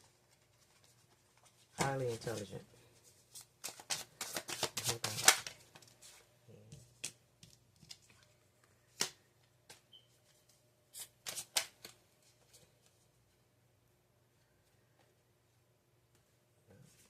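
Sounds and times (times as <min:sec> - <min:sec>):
cards riffling and rustling: 0:03.0 - 0:06.2, 0:11.0 - 0:13.0.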